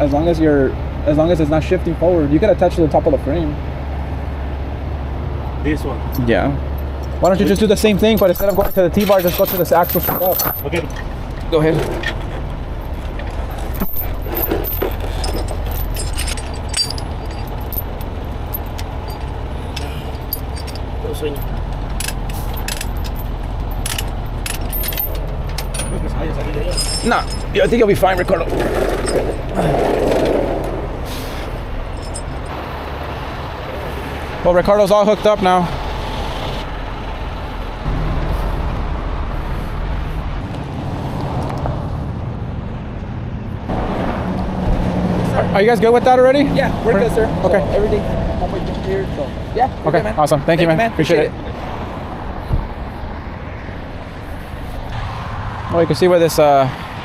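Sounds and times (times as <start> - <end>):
low engine rumble: 0.0 - 54.9
freeway traffic noise: 0.0 - 57.0
tow chain clinking and rattling: 6.0 - 32.6.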